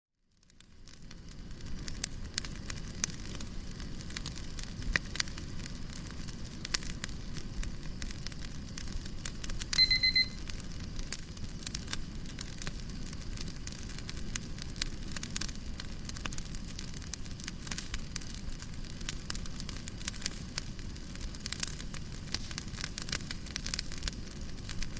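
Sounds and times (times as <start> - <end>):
fire crackling and popping: 0.2 - 24.9.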